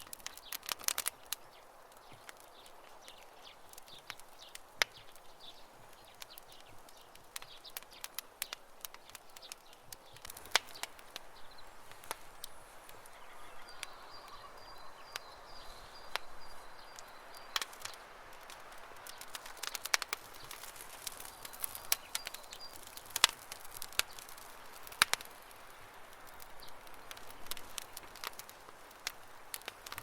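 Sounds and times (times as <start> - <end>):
campfire crackling and popping: 0.0 - 30.0
faint bird trill: 13.0 - 17.1.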